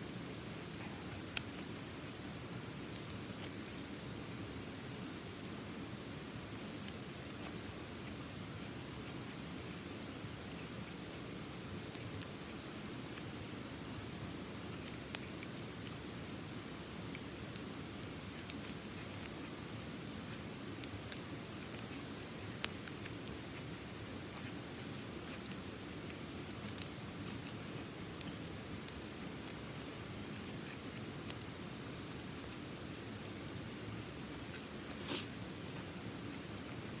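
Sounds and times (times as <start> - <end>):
wood fire crackling and popping: 0.3 - 37.0
fire hissing: 26.2 - 35.8.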